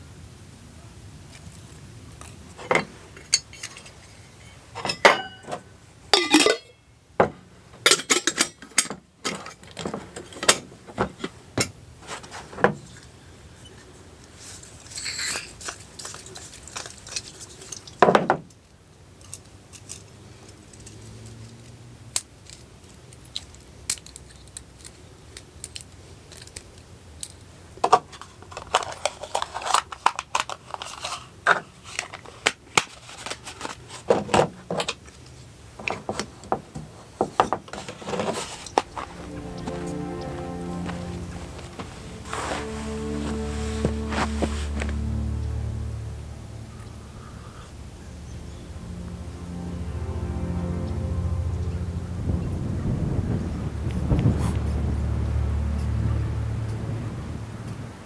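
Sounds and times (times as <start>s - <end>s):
metal utensils clinking: 2.7s - 6.8s, 7.9s - 9.4s.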